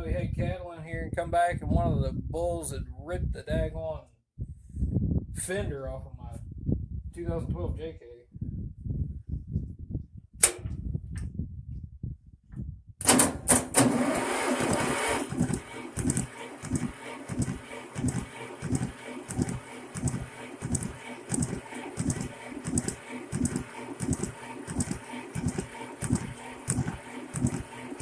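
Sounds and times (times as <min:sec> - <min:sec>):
diesel engine cranking: 0:13.0 - 0:28.0.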